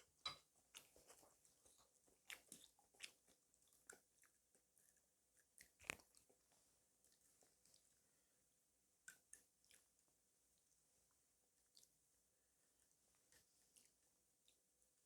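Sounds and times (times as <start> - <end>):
chewing and mouth noises: 0.7 - 8.0, 9.0 - 10.1, 11.7 - 12.0.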